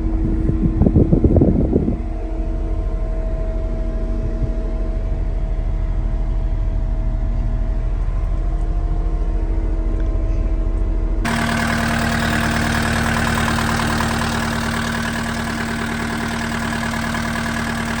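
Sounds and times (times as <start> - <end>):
diesel engine running: 11.2 - 18.0
steady hum: 11.3 - 18.0.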